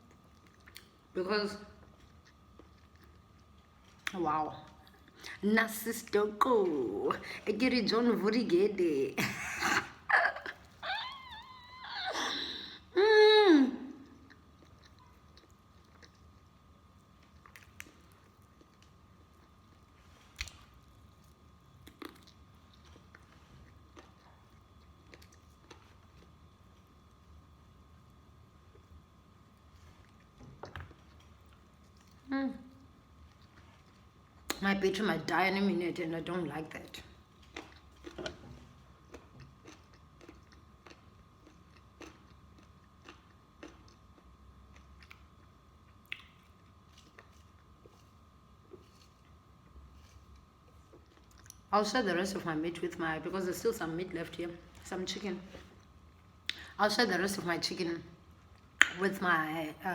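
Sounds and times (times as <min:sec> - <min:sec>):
person chewing fried chicken: 0:00.0 - 0:01.1, 0:01.8 - 0:04.1, 0:14.0 - 0:32.3, 0:33.0 - 0:34.6, 0:37.3 - 0:51.7
faint steady hum: 0:00.0 - 0:59.9
mouth clicks and smacks: 0:46.0 - 0:46.5.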